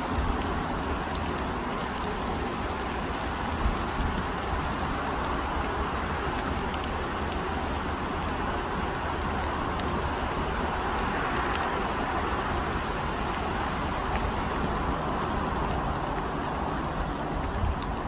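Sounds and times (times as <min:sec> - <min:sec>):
distant road traffic rumble: 0:00.1 - 0:18.0
faint ticks: 0:14.1 - 0:18.0.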